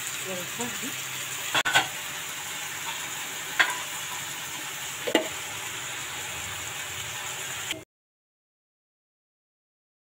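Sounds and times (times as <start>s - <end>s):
chicken sizzling in oil: 0.0s - 7.9s.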